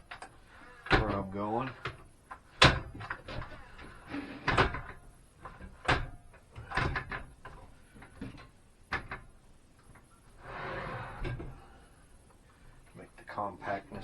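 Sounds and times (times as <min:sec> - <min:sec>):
equipment knocks and clunks: 0:02.6 - 0:03.5.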